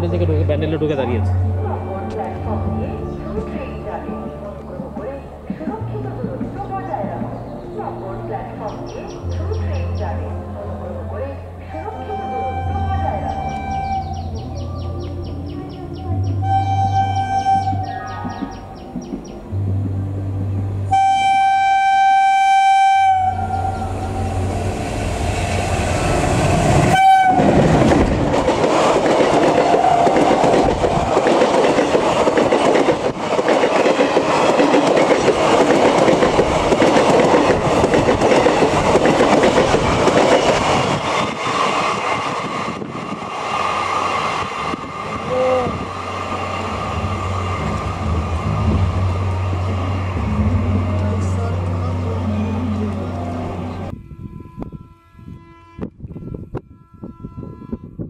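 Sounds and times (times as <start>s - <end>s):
train coaches rushing past: 0.0s - 21.8s, 23.2s - 53.9s
locomotive horn blasts: 11.7s - 14.3s, 16.3s - 18.0s, 20.9s - 24.5s, 26.8s - 27.8s, 53.2s - 58.0s
wheels clacking over rail joints: 27.3s - 52.0s.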